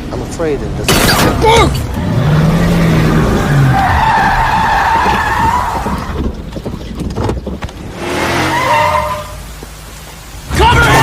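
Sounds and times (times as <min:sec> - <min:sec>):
rough rumble with knocks: 0:00.0 - 0:08.2
car tyres squealing: 0:02.1 - 0:06.4, 0:07.9 - 0:09.6.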